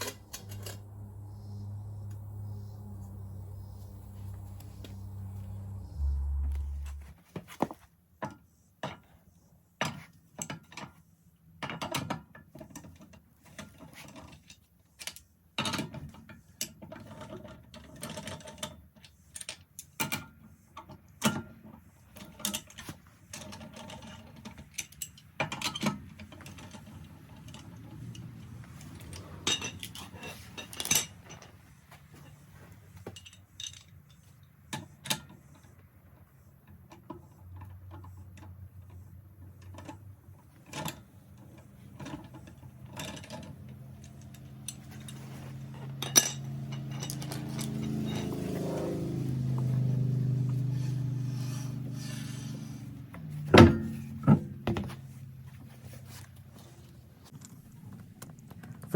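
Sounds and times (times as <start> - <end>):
hand tools clanking on metal: 0.0 - 1.1.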